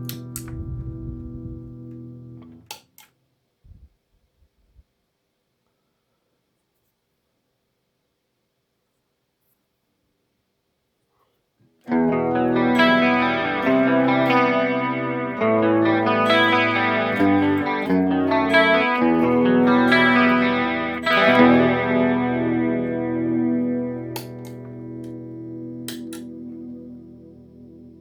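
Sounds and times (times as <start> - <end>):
electric guitar chords: 0.0 - 2.6, 11.9 - 28.0.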